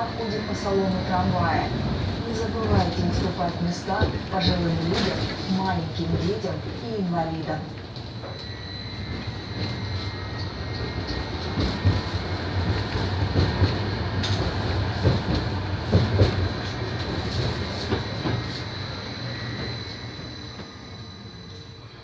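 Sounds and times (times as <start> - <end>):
tram rumble: 0.0 - 22.0
faint high whine: 8.0 - 11.5, 17.9 - 22.0.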